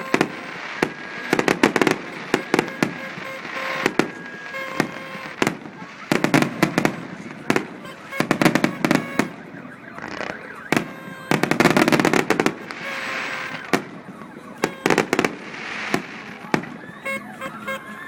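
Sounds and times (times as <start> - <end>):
fireworks bangs and crackling: 0.0 - 18.0
fireworks hissing: 11.9 - 13.7, 15.0 - 16.5.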